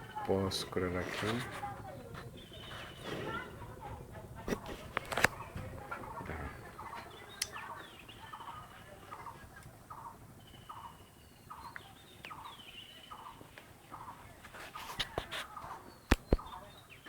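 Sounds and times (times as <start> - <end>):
thin whistled bird calls: 6.8 - 14.2, 15.6 - 17.0.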